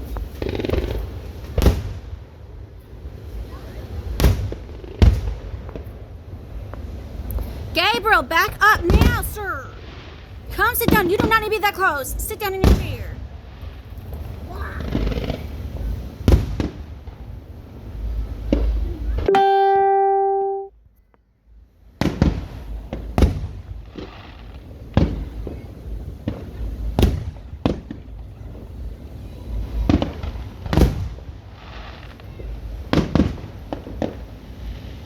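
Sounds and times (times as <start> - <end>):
fireworks bangs and booms: 0.0 - 18.8, 22.0 - 35.0
steady pitched tone: 19.3 - 20.7.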